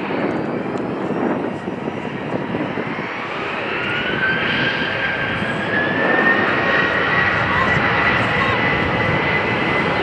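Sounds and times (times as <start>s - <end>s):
airliner engines rumbling: 0.0s - 10.0s
engine whine rising in pitch: 2.7s - 10.0s.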